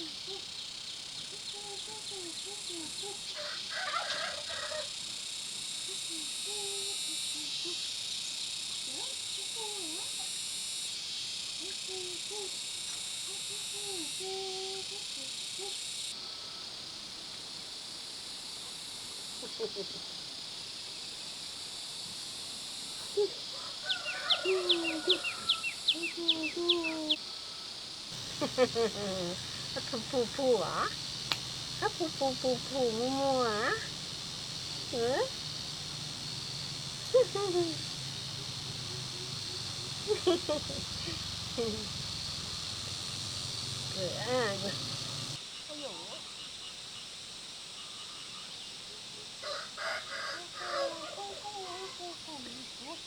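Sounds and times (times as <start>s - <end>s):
insects droning: 0.0s - 53.0s
chickens clucking: 28.2s - 45.4s
high falling bird chirps: 28.2s - 45.4s
lower bird calls: 28.2s - 45.4s.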